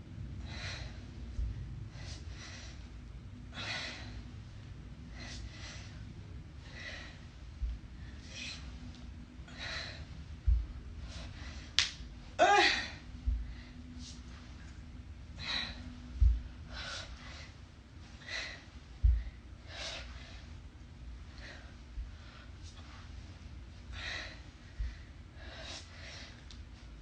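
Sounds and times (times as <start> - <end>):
woman breathing hard: 0.0 - 26.6
low thud: 10.4 - 10.8, 13.2 - 13.6, 16.2 - 16.5, 19.0 - 19.4
woman groaning: 12.4 - 13.0.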